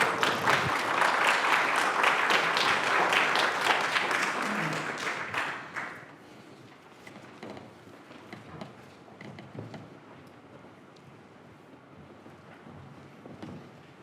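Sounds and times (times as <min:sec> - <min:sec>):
congregation applauding: 0:00.0 - 0:06.2.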